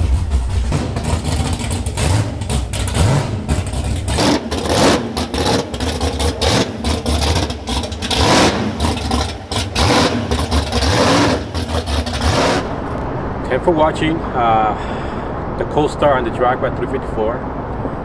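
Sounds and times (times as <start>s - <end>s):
car engine revving roughly: 0.0s - 13.0s
exhaust pops and cracks: 0.0s - 13.0s.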